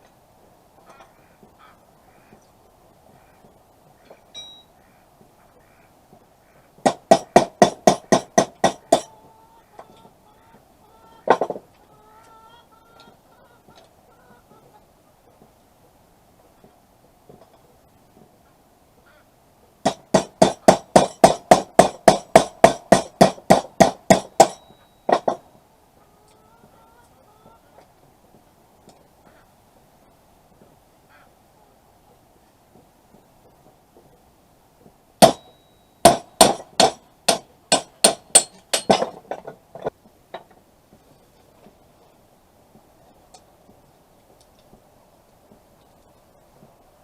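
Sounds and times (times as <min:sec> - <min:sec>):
hammer ringing on anvil: 0:04.4 - 0:04.7, 0:24.3 - 0:25.1
hammer striking metal: 0:06.8 - 0:09.1, 0:19.8 - 0:25.4, 0:35.2 - 0:39.2.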